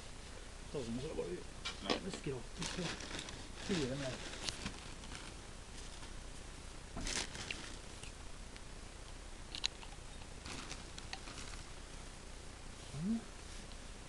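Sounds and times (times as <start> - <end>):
wood shavings crunching and scraping: 2.1 - 6.2, 7.0 - 7.9, 10.4 - 11.7.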